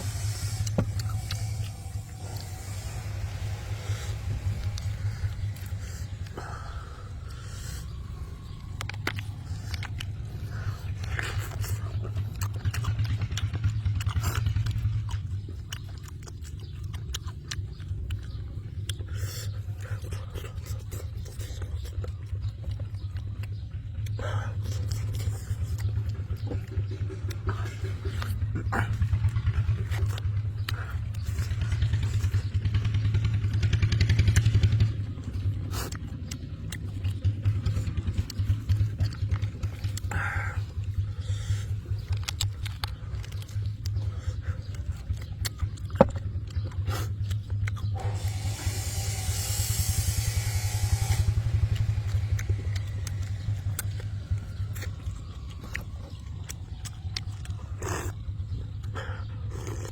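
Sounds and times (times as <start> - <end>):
hiss: 0.0 - 5.2, 48.0 - 53.7
small engine puttering: 0.0 - 59.9
sharp clicks: 44.7 - 58.9.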